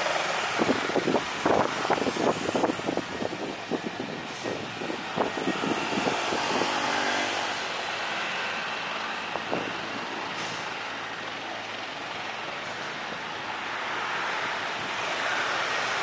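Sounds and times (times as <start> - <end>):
wind buffeting microphone: 0.3 - 7.8, 9.2 - 10.4.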